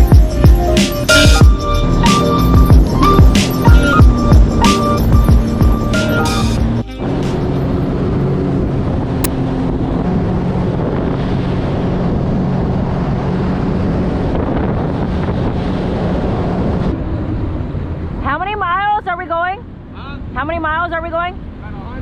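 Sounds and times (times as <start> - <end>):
jet ski engine running: 0.0 - 18.8
wind buffeting microphone: 7.7 - 18.2.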